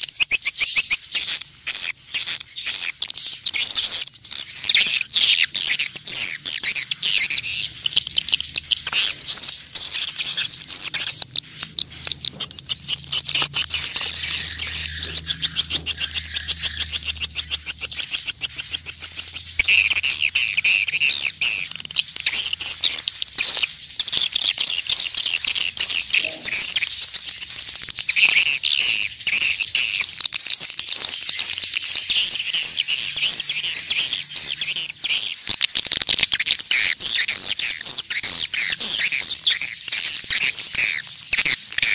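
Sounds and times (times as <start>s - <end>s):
swiftlets twittering: 0.0s - 41.9s.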